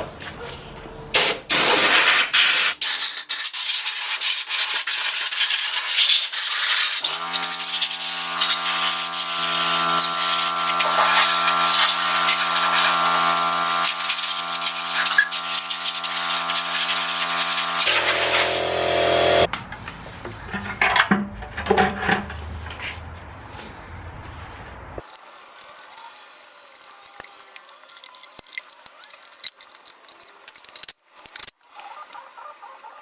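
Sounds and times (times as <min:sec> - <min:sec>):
loud spraying hiss: 0:01.2 - 0:18.0, 0:25.0 - 0:30.5
scattered clicks: 0:25.0 - 0:32.3.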